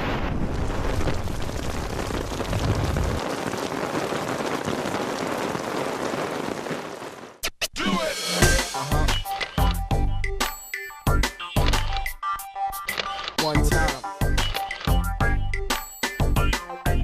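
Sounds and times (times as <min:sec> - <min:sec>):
heavy rain falling: 0:00.0 - 0:07.4.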